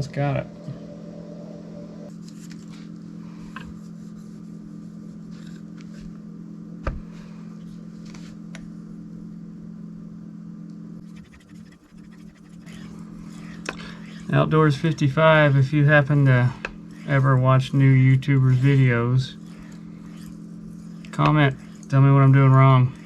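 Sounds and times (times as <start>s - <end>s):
steady low hum: 0.0s - 23.0s
knife scraping on whetstone: 11.0s - 15.1s, 16.2s - 23.0s.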